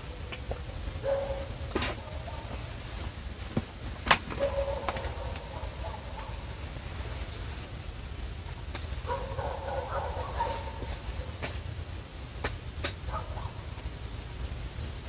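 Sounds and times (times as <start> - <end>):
distant dogs barking: 0.0 - 7.6, 8.9 - 12.0, 12.9 - 14.0
steady low rumble: 0.0 - 15.0.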